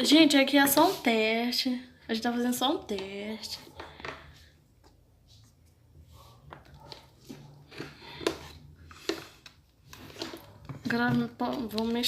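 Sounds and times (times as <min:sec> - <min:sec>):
slime being stirred: 0:02.8 - 0:12.0.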